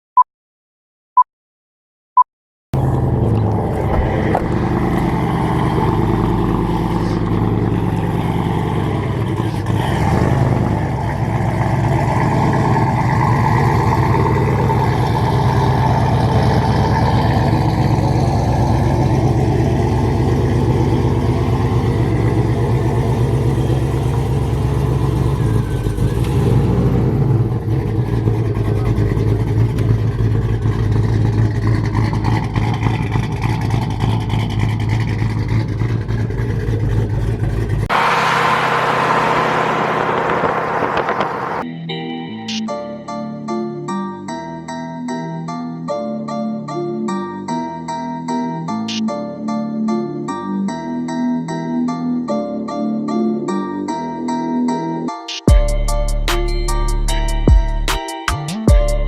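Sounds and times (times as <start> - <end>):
car engine running: 2.8 - 41.6
road noise: 2.8 - 41.6.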